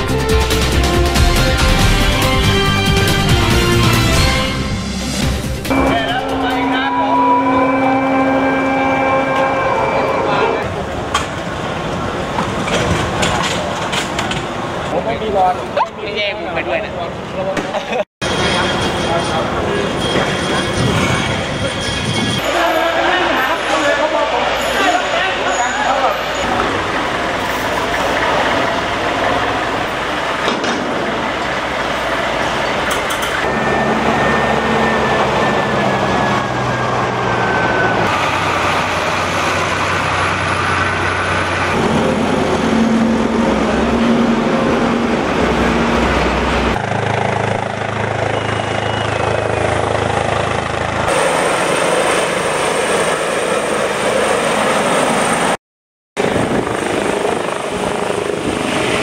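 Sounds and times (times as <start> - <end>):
engine and machinery hum: 26.3 - 55.6, 56.2 - 59.0.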